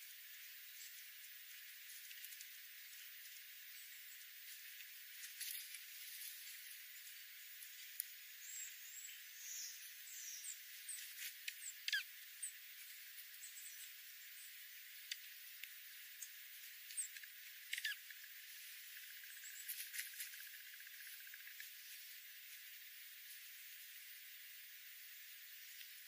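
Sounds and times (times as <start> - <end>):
steady hiss: 0.0 - 26.0
high-pitched animal chirps and squeaks: 11.8 - 12.1, 17.7 - 18.0.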